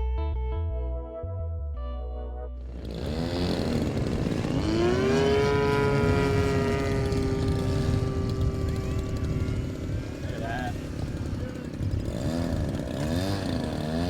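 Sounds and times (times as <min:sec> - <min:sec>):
electric motor and propeller whining: 0:02.6 - 0:14.0
wind rumble on microphone: 0:03.2 - 0:13.7.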